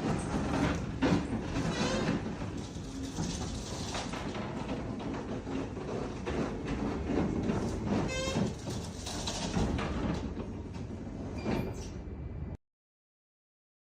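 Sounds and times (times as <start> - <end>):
roll-up metal shutter rumbling: 0.0 - 5.1, 7.3 - 10.3.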